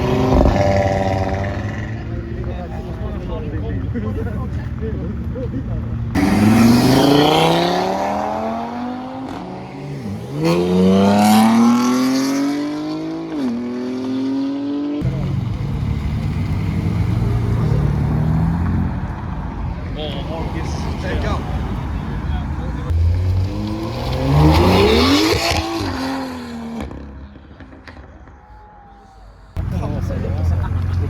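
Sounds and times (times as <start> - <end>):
car engine accelerating through gears: 0.0 - 2.1, 6.1 - 19.2, 22.9 - 27.0.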